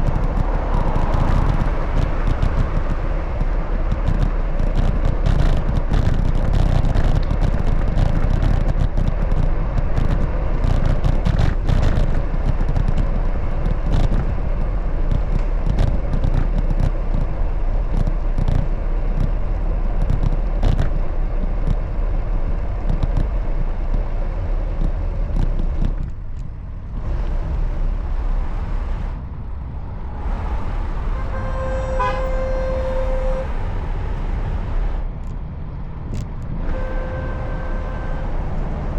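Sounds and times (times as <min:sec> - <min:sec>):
small clicks and rattles: 0:00.0 - 0:19.4, 0:20.0 - 0:21.0, 0:24.8 - 0:26.6
bicycle road noise: 0:00.0 - 0:38.9
wind rumble on microphone: 0:00.0 - 0:38.9
vehicle horn: 0:30.5 - 0:35.0, 0:36.6 - 0:38.9.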